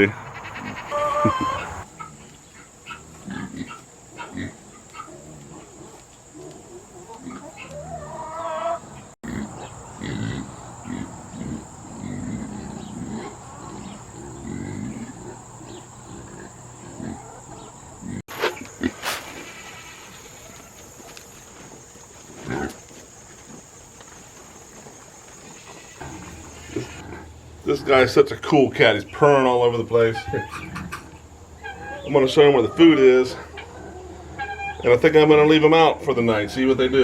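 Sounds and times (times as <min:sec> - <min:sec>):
boars grunting: 0:02.9 - 0:08.2, 0:08.8 - 0:20.7, 0:22.3 - 0:22.8, 0:25.8 - 0:28.2.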